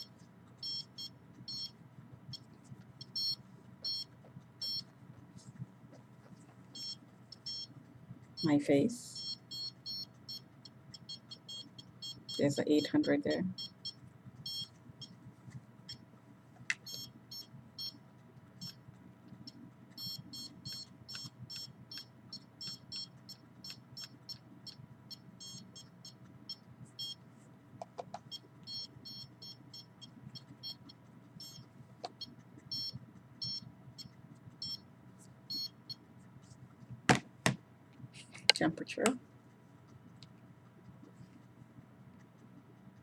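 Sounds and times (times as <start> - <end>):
high-pitched detector beeps: 0.0 - 4.9, 6.8 - 7.7, 9.1 - 15.2, 16.9 - 18.0, 18.6 - 18.8, 19.5 - 27.2, 28.3 - 34.8, 35.5 - 36.0.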